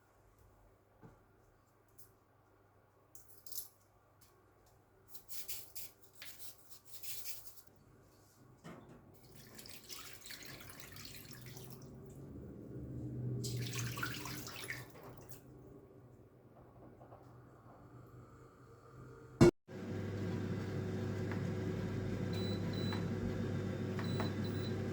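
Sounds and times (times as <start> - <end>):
kitchen tap running: 9.2 - 12.2, 13.4 - 15.4.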